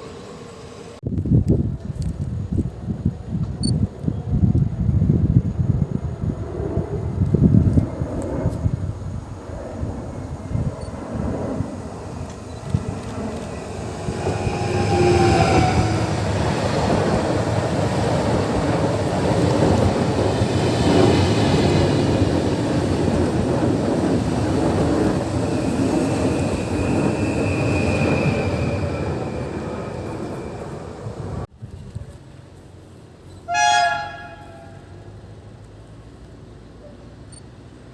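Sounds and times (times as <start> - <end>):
train wheels rumbling on rail: 10.3 - 32.1
high wheel squeal: 13.5 - 16.3, 25.4 - 31.0.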